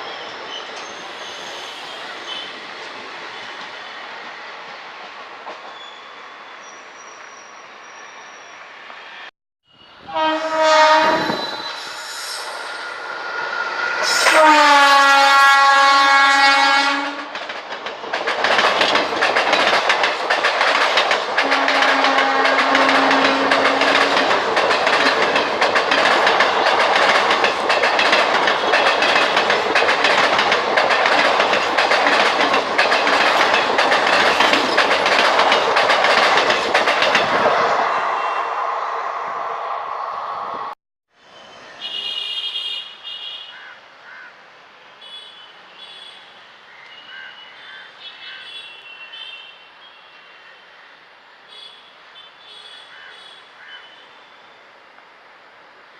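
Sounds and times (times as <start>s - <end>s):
locomotive horn: 10.0s - 12.6s, 14.0s - 17.4s, 21.4s - 24.2s
train wheels clattering on rails: 14.0s - 37.7s.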